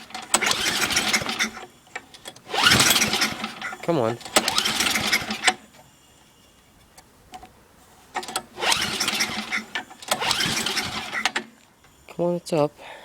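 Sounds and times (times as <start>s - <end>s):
small engine cranking: 0.0s - 5.7s, 8.2s - 11.6s.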